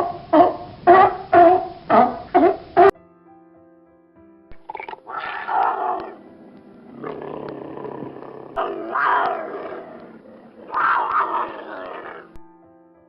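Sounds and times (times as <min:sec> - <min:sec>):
large animal roaring: 0:04.7 - 0:06.2, 0:06.9 - 0:12.4.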